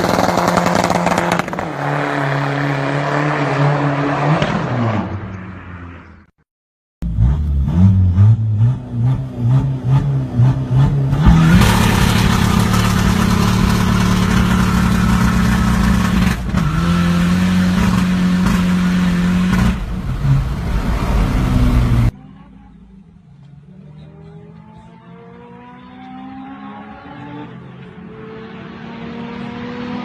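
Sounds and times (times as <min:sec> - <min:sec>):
diesel engine revving: 0:07.0 - 0:22.2.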